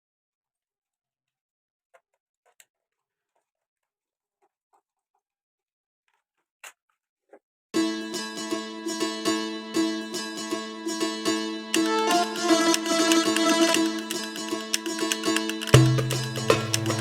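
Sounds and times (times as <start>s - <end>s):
plucked-string background music: 7.8s - 17.0s.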